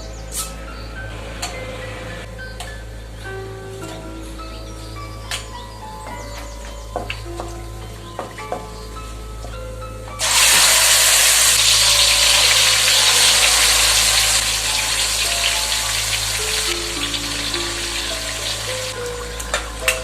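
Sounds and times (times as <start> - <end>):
background music: 0.0 - 20.0
food sizzling in a hot pan: 10.2 - 18.9.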